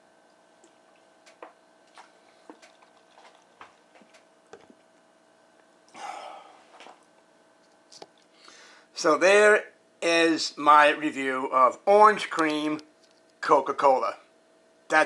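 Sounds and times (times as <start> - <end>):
faint steady hum: 0.0 - 15.0
small irregular clicks: 12.4 - 13.4.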